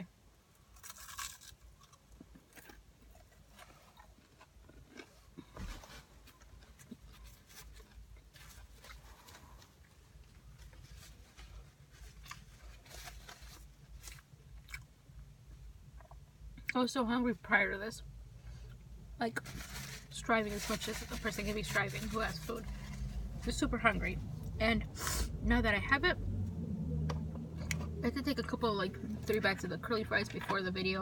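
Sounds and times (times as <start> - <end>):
chewing french fry: 0.6 - 5.6, 12.0 - 14.9.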